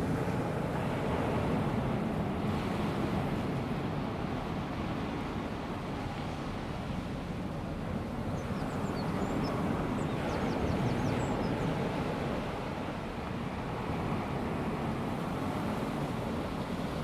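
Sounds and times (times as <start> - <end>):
sea washing on beach: 8.8 - 17.0.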